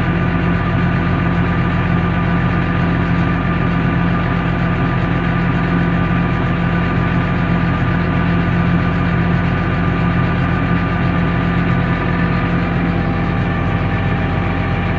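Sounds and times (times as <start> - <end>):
tractor diesel engine running: 0.0 - 14.9.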